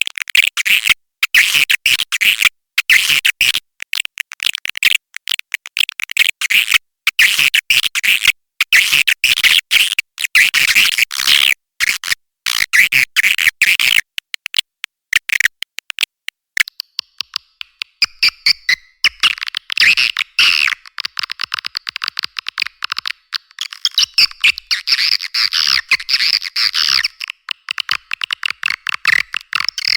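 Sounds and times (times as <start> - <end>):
swiftlet chattering clicks: 13.3 - 25.1, 25.8 - 29.9.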